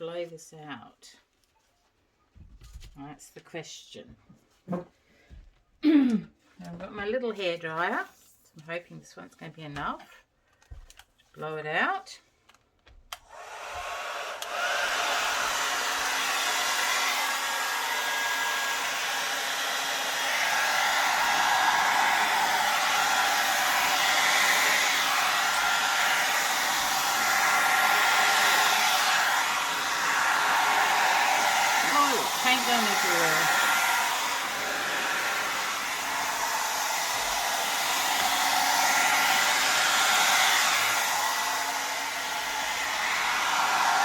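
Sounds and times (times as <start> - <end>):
hair dryer blowing: 13.1 - 44.0.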